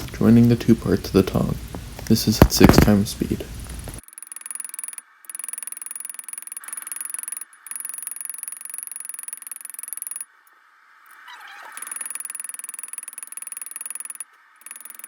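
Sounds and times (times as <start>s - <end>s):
rapid hammer blows on metal: 0.0s - 4.0s.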